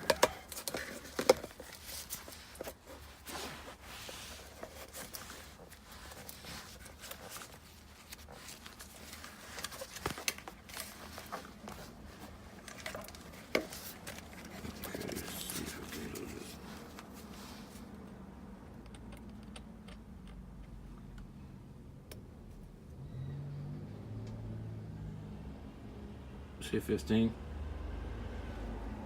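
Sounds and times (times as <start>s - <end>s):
hands rustling: 0.0s - 17.9s.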